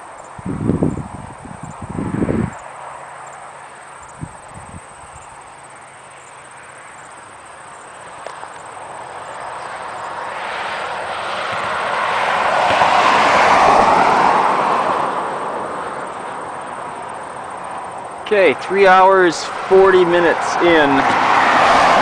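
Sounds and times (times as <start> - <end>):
vehicle passing on highway: 0.0 - 22.0.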